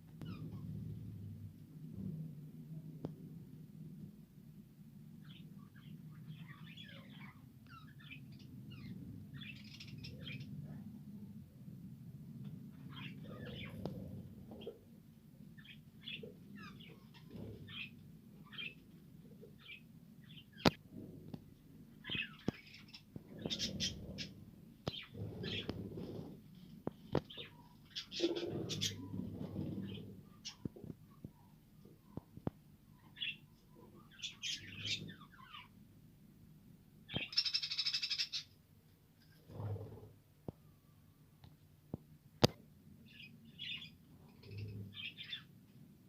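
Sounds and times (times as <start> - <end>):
budgies chirping: 12.8 - 13.9, 22.0 - 26.3, 27.1 - 30.7, 33.0 - 35.7, 37.1 - 38.5.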